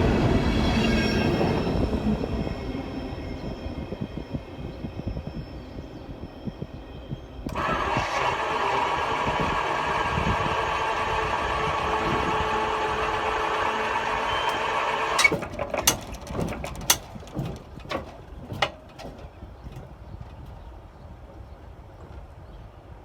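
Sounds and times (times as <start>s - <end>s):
engine droning: 7.5s - 20.5s
sharp clicks and knocks: 13.0s - 20.6s.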